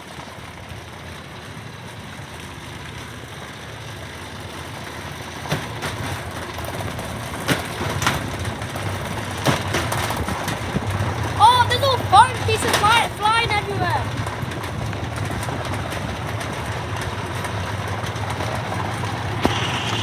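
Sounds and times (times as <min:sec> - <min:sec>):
washing machine spinning: 0:04.1 - 0:20.0.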